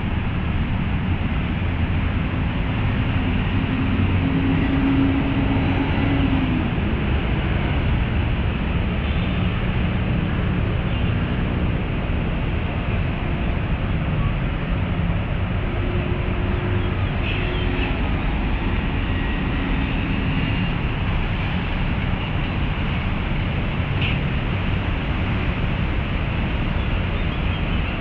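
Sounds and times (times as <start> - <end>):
city traffic rumble: 0.0 - 28.0
faint engine hums: 0.0 - 28.0.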